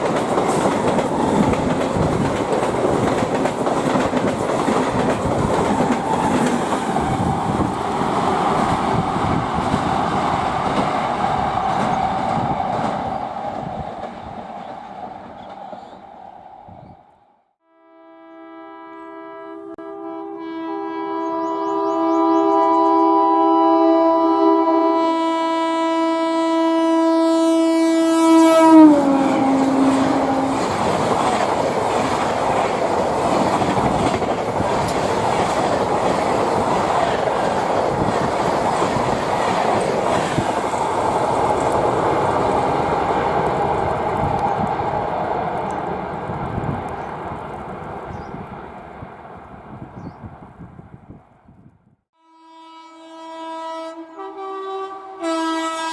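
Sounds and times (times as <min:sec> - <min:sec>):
train coaches rushing over rails: 0:00.0 - 0:17.2, 0:28.1 - 0:50.6
train horn chord: 0:17.6 - 0:31.4, 0:52.1 - 0:55.9.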